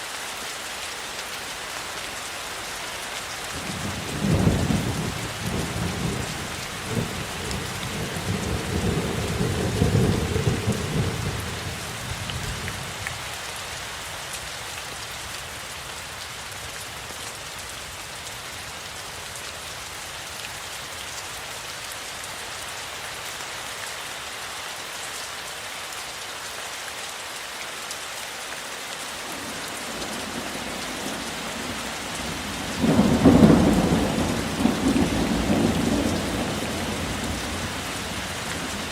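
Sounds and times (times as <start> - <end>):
steady rain falling: 0.0 - 38.9
thunder rumbling: 3.7 - 12.7, 32.2 - 38.9.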